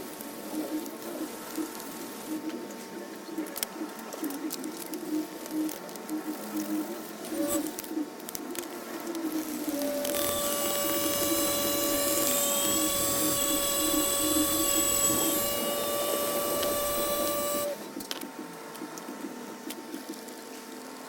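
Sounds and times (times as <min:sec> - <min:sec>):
electric rotary polishing tool: 0:07.3 - 0:07.7, 0:09.4 - 0:17.8.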